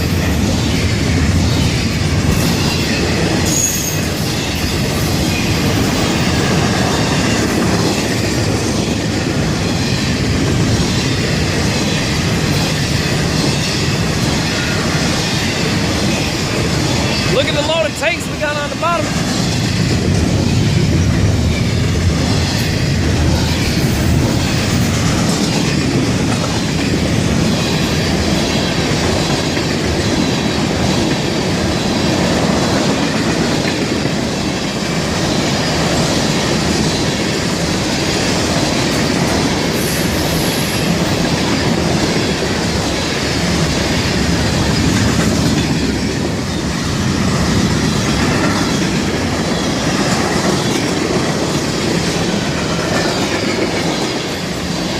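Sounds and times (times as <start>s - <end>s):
clickety-clack over rail joints: 0.0s - 54.9s
freight train wheels rumbling: 0.0s - 54.9s
high wheel squeal: 2.5s - 4.8s.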